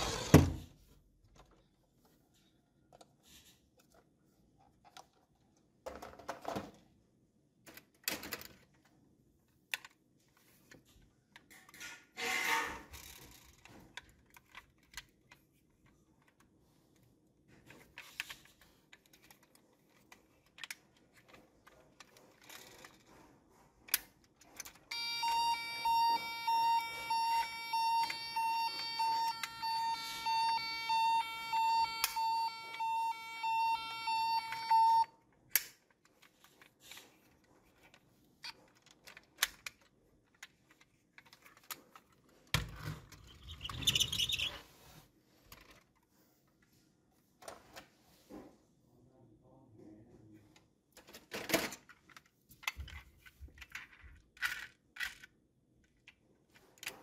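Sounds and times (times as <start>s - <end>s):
toy siren beeping: 24.9s - 35.1s, 43.3s - 44.6s.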